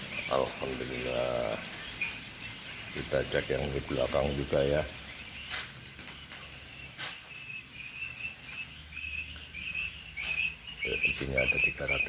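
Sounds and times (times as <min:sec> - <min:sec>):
quails chirping: 0:00.0 - 0:12.0.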